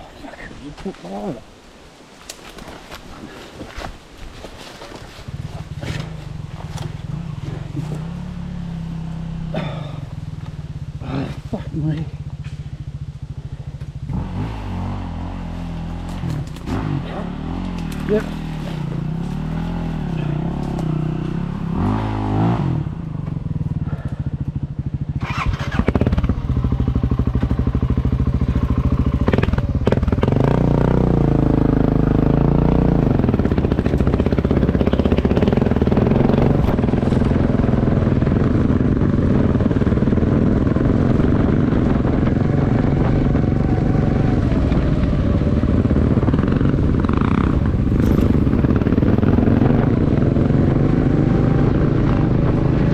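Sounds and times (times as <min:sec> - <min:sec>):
motorcycle engine changing gear: 0:05.0 - 0:11.1, 0:15.8 - 0:24.6, 0:25.2 - 0:52.9.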